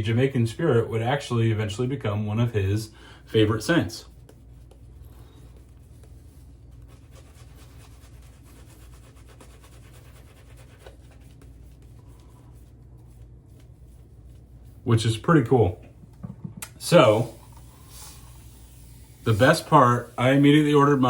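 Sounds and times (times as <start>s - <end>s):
shaving brush swishing lather: 3.3s - 15.7s, 16.8s - 21.0s.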